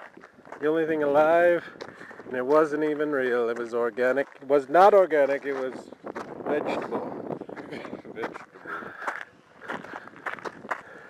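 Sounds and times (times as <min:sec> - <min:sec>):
footsteps on rough ground: 0:00.0 - 0:11.0.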